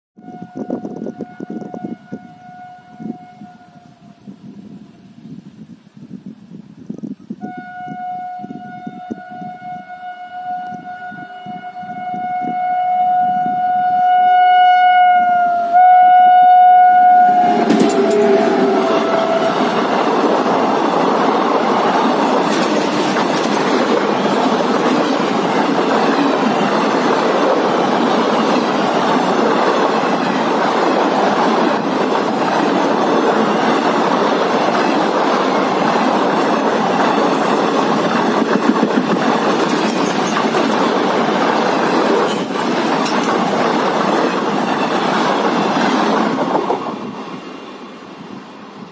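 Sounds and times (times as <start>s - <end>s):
train horn blast: 0.2s - 5.2s, 7.4s - 20.2s
train coaches roaring past: 7.5s - 48.9s
wheel clatter on rails: 17.5s - 47.0s.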